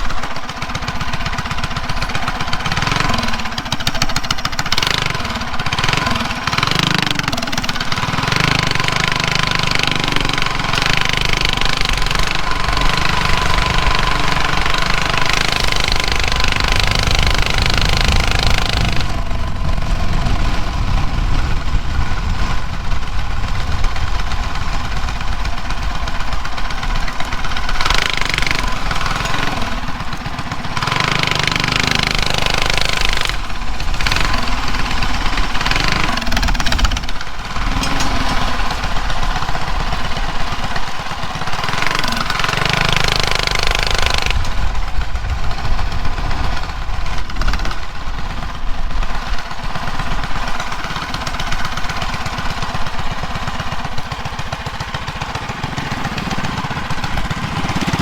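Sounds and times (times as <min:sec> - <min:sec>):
mini bike engine revving: 0:00.0 - 0:58.0.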